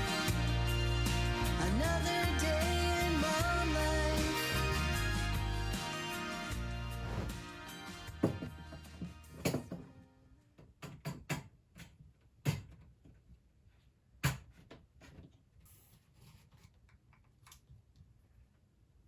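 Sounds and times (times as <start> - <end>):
household objects knocking and clicking: 8.2 - 8.5, 9.4 - 9.8, 10.7 - 13.0.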